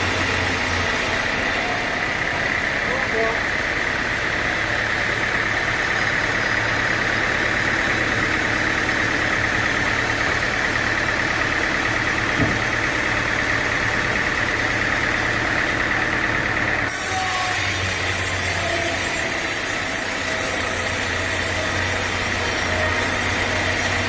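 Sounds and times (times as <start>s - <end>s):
sawmill engine running: 0.0s - 24.0s
short knock: 12.4s - 12.7s.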